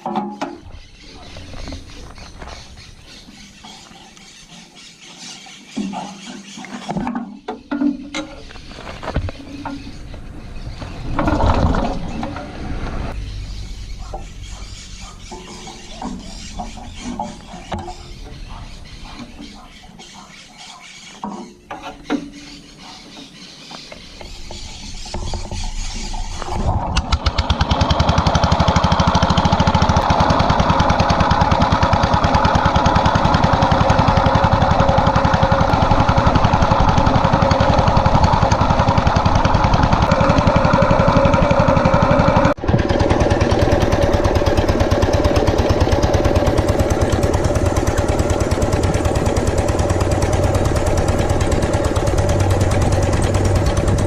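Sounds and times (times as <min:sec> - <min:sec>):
small stationary engine running: 0:27.1 - 0:54.0.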